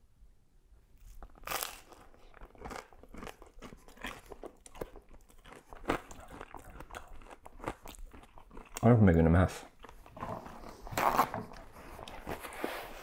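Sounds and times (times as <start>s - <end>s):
crunchy food bite: 1.0s - 8.9s
chewing with small crunches: 1.0s - 13.0s.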